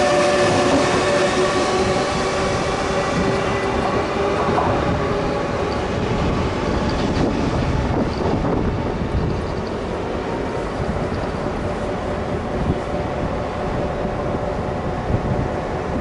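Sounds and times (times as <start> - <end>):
train wheels clickety-clack: 0.0 - 10.0.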